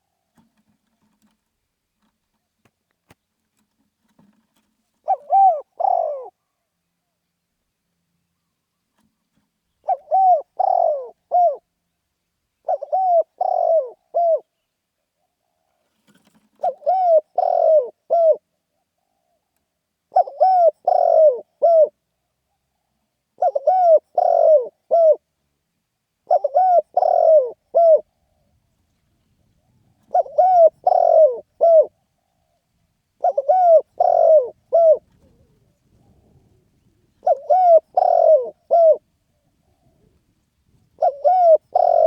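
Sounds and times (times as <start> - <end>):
dove cooing: 5.0 - 6.5, 9.8 - 11.7, 12.6 - 14.6, 15.2 - 19.5, 20.1 - 25.3, 26.2 - 28.6, 29.6 - 32.6, 33.2 - 42.0.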